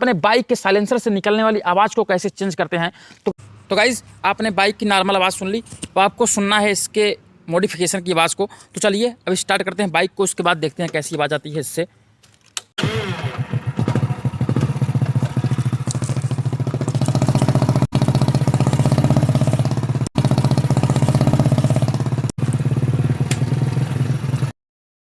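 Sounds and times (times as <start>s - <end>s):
motorcycle engine running: 12.8s - 24.6s.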